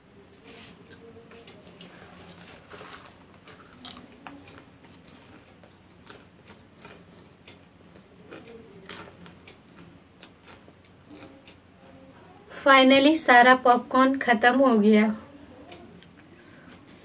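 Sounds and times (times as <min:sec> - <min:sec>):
faint steady hum: 0:00.0 - 0:17.0
popcorn crunching: 0:00.6 - 0:11.6.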